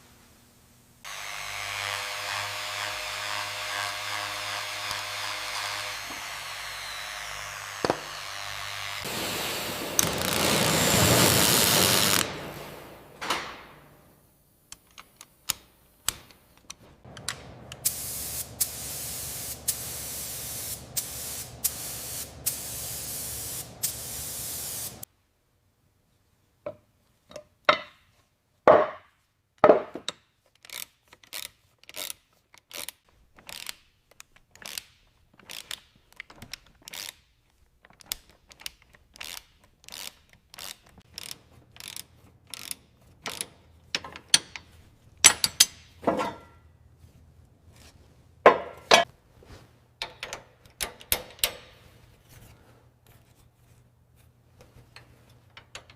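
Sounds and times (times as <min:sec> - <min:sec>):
spraying hiss: 0:09.0 - 0:12.8, 0:17.7 - 0:25.1
parts clicking and knocking: 0:26.7 - 0:28.1, 0:29.6 - 0:46.7, 0:50.0 - 0:52.0, 0:54.6 - 0:55.9.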